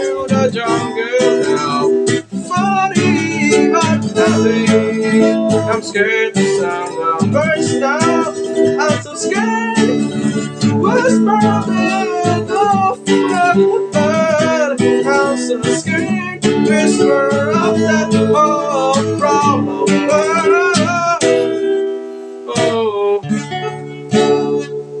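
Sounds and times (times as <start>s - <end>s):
gliding melody line: 0.0s - 24.6s
acoustic guitar strumming chords: 0.0s - 25.0s.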